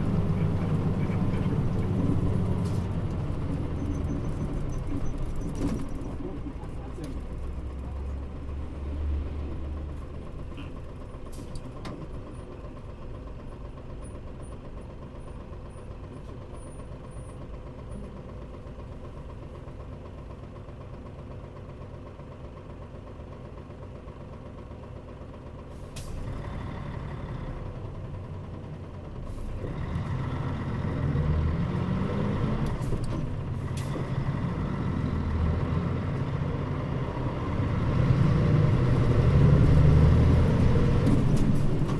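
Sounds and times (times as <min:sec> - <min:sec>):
bus engine revving and pulling away: 0:00.0 - 0:18.5, 0:25.6 - 0:41.9
bus engine idling: 0:00.0 - 0:41.9
air brakes releasing air: 0:25.7 - 0:26.3.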